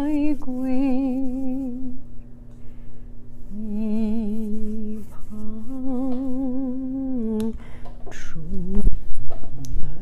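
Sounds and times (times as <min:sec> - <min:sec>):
woman singing softly: 0:00.0 - 0:02.1, 0:03.5 - 0:09.2.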